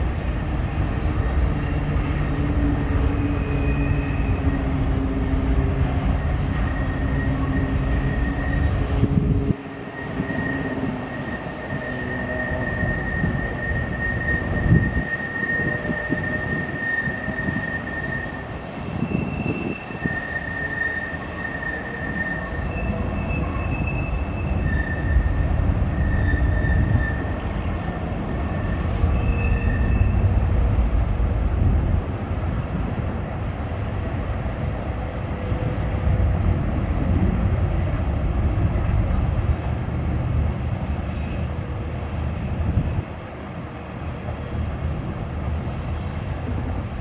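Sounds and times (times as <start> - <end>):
freight train wheels rumbling: 0.0 - 47.0
high-pitched wheel squeals: 1.1 - 30.4.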